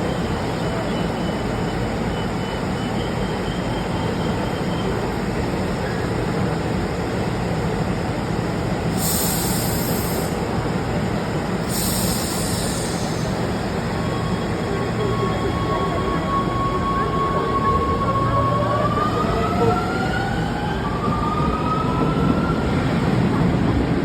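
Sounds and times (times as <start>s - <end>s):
train low rumble: 0.0s - 24.0s
loud air hisses: 8.9s - 10.5s, 11.6s - 13.6s.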